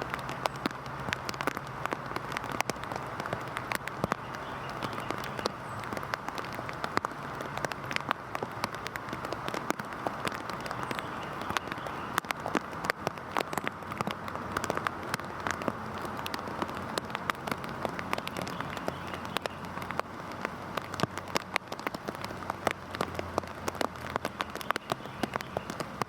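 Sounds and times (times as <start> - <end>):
heavy rain hissing: 0.0 - 26.0
raindrops ticking on surface: 0.0 - 26.0.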